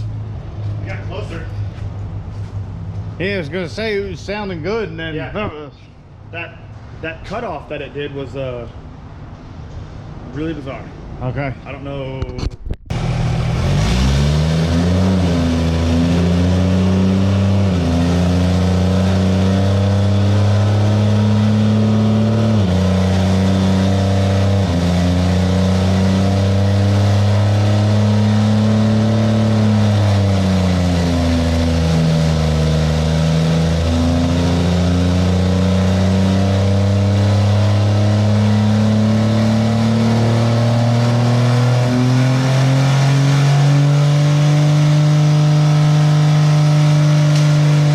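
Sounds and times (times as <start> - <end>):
diesel engine running hard: 12.9 - 47.9.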